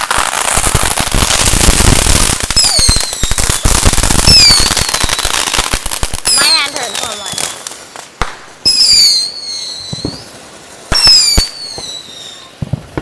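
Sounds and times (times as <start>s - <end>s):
firecracker crackles and pops: 0.0s - 13.0s
shrill descending whistles: 8.7s - 10.3s.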